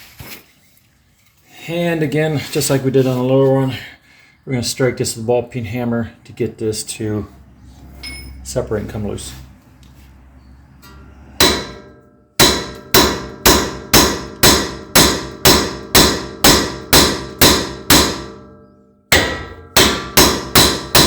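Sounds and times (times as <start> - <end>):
hammer striking metal: 10.8 - 21.0.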